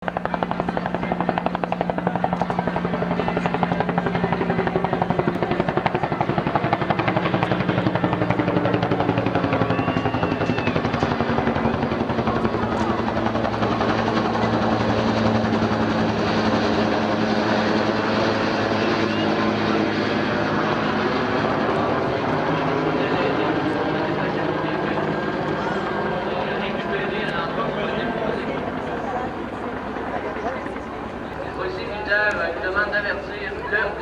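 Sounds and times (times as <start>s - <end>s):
helicopter engine running: 0.0s - 34.0s
helicopter rotor beating: 0.0s - 34.0s.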